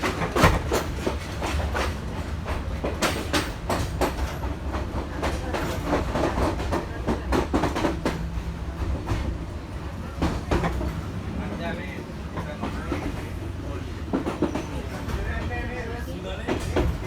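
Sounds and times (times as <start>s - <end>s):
wheels clacking over rail joints: 0.0s - 9.4s
train wheels rumbling: 0.0s - 17.0s.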